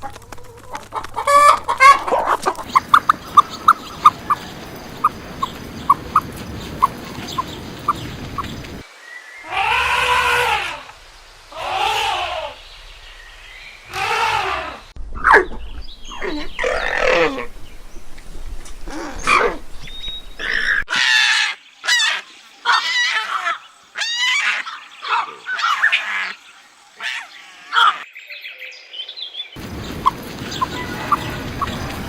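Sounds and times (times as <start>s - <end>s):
animal calls rising and falling: 9.4s - 12.6s, 13.8s - 15.5s.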